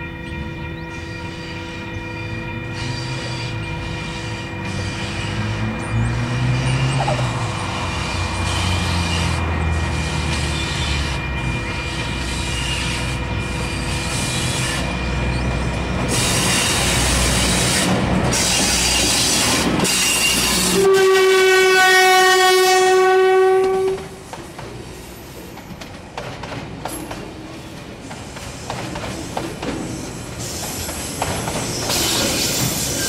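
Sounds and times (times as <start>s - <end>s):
diesel locomotive engine rumble: 0.0s - 33.0s
locomotive horn blast: 0.1s - 24.3s.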